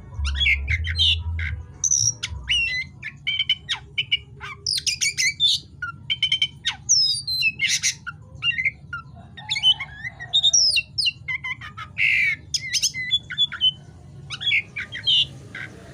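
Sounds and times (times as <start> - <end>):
low hum: 0.0 - 3.0
bird singing: 0.0 - 15.9.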